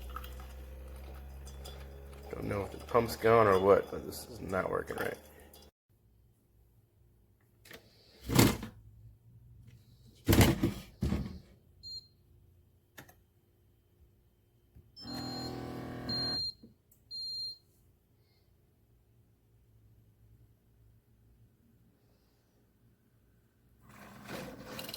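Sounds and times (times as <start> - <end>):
pump buzzing: 0.0 - 3.6, 15.0 - 16.5
coffee maker noisy bursts: 0.0 - 5.5, 15.0 - 16.4.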